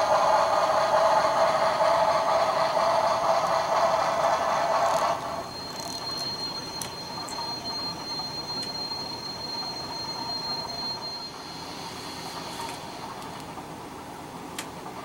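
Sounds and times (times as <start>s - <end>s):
model locomotive running noise: 0.0s - 13.8s
high-pitched squeal: 4.0s - 13.2s.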